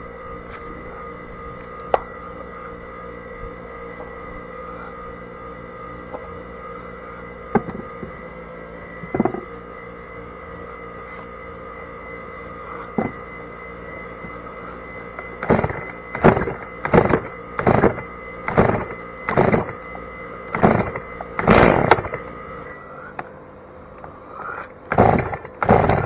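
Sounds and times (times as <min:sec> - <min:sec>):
chainsaw pull-start rasping: 0:15.4 - 0:19.8, 0:20.5 - 0:22.3, 0:24.4 - 0:26.0.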